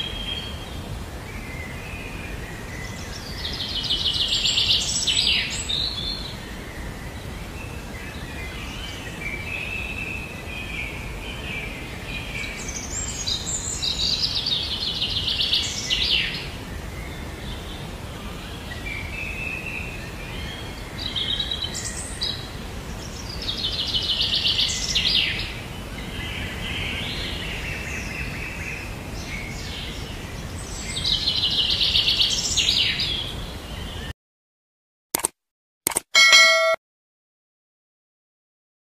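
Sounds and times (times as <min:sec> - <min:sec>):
outdoor background noise: 0:00.0 - 0:34.1
songbird singing: 0:00.0 - 0:34.1.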